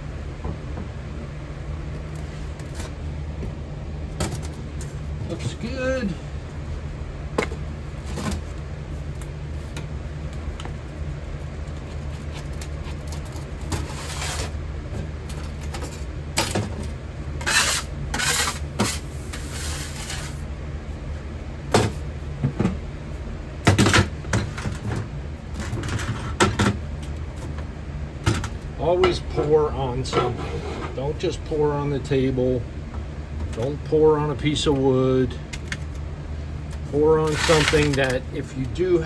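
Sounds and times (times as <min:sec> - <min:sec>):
furnace rumbling: 0:00.0 - 0:39.0
metal scraping: 0:29.2 - 0:31.1, 0:37.2 - 0:38.2.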